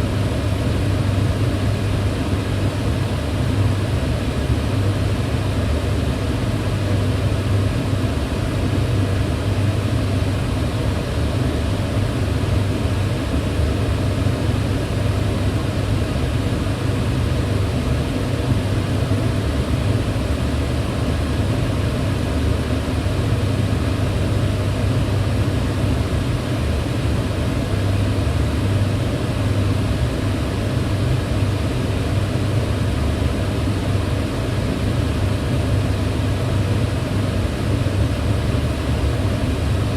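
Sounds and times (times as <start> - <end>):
range hood fan running: 0.0 - 39.9.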